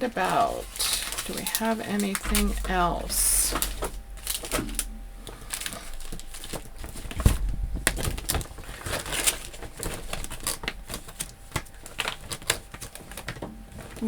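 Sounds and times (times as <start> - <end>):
stamp packets rustling and crinkling: 0.0 - 14.0
heavy thump: 2.2 - 9.1.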